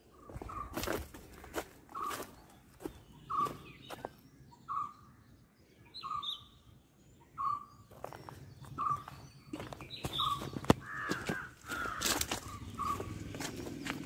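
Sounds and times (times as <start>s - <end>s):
footsteps on dry leaves and gravel: 0.0s - 4.3s, 7.8s - 14.0s
bird chirping: 0.0s - 14.0s.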